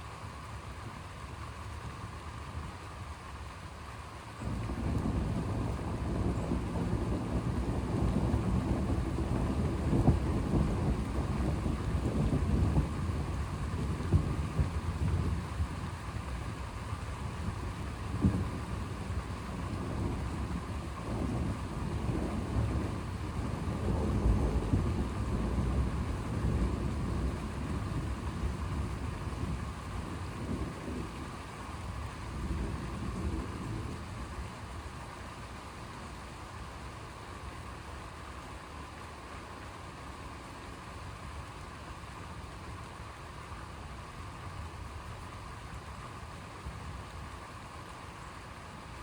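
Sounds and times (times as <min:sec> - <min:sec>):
steady rain: 0:00.0 - 0:49.0
rolling thunder: 0:04.4 - 0:35.4.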